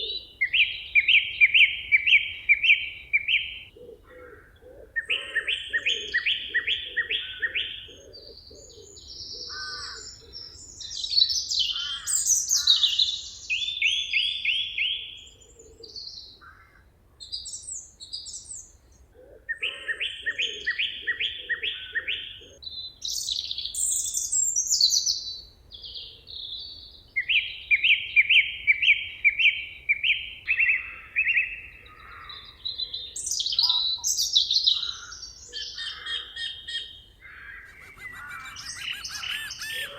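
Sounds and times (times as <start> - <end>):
songbirds singing: 0.0 - 39.9
lower pulsing bird call: 34.8 - 39.9.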